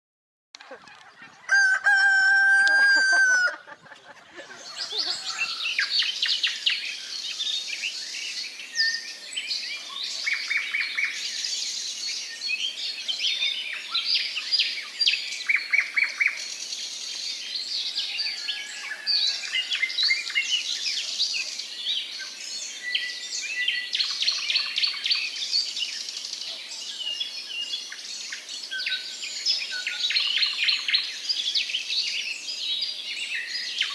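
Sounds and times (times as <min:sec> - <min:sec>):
small birds chirping and trilling: 0:00.6 - 0:33.9
rooster crowing: 0:01.3 - 0:05.8, 0:18.2 - 0:20.0.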